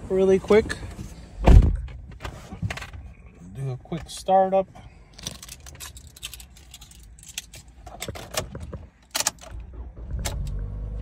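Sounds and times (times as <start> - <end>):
keys jangling: 5.2 - 8.4.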